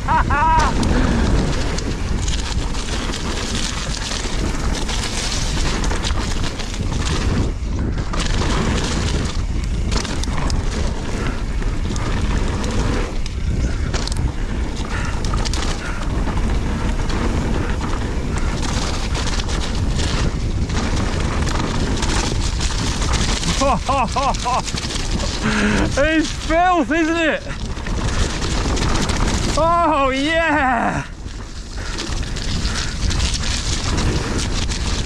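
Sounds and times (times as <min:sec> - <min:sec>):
mountain bike rumble and rattle: 0:00.0 - 0:35.0
wind buffeting microphone: 0:00.0 - 0:35.0.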